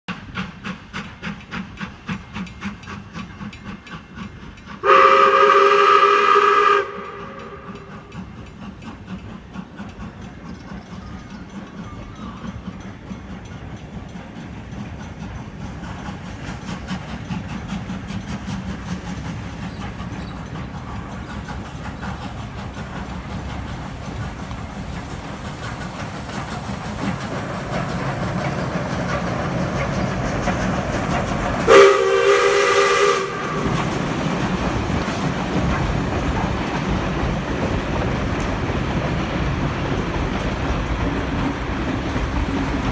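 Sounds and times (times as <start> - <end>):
steam locomotive exhaust beats: 0.1 - 42.9
steam whistle blast: 4.8 - 7.9, 31.7 - 33.9.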